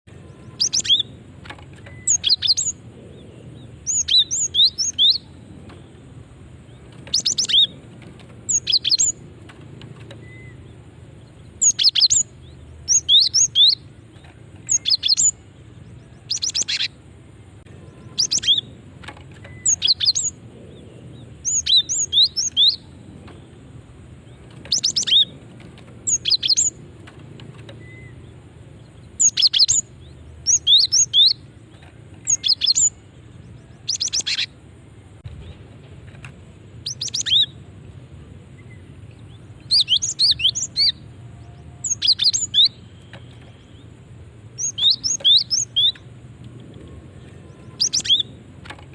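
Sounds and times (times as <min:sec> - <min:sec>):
bird chirping high notes: 0:00.1 - 0:01.2, 0:01.8 - 0:02.8, 0:17.8 - 0:18.8.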